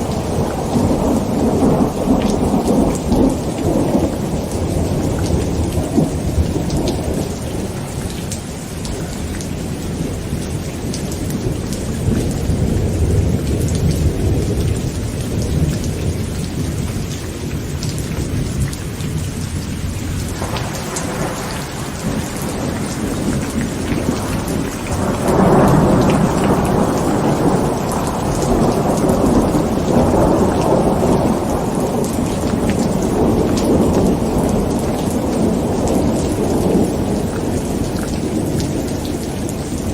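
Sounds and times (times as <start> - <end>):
heavy rain pattering on a tent: 0.0 - 39.9
thunder rumbling: 0.0 - 39.9.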